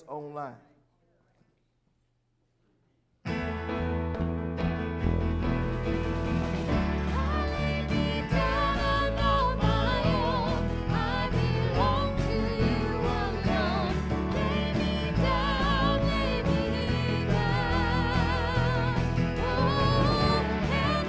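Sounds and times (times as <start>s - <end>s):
instrumental backing with bass: 3.3s - 21.0s
person singing with vibrato: 7.0s - 21.0s.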